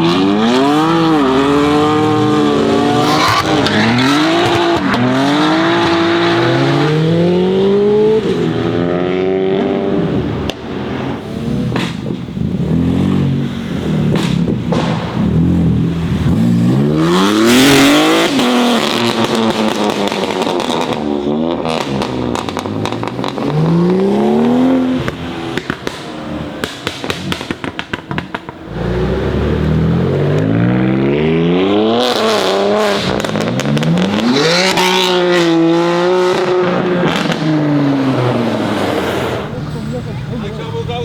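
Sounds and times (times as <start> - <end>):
car engine accelerating hard: 0.0 - 41.0
exhaust crackles and pops: 10.4 - 12.6, 14.0 - 16.5, 18.3 - 31.3, 32.0 - 35.4.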